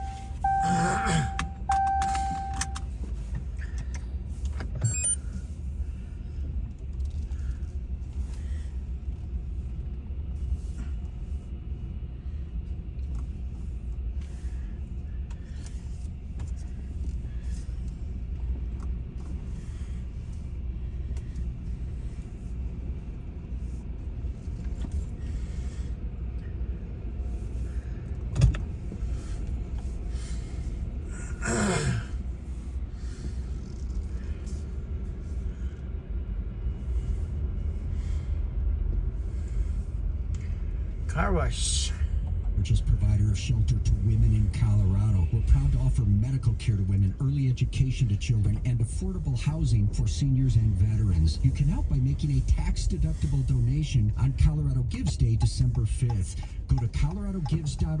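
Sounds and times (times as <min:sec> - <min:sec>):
car cabin rumble: 0:00.0 - 0:58.0
click: 0:02.0 - 0:02.9.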